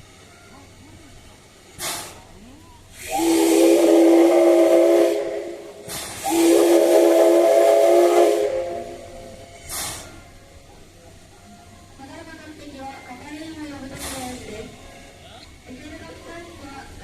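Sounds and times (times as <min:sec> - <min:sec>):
steam hissing: 0:00.0 - 0:11.3, 0:13.8 - 0:14.9
steam locomotive whistle: 0:03.0 - 0:10.2.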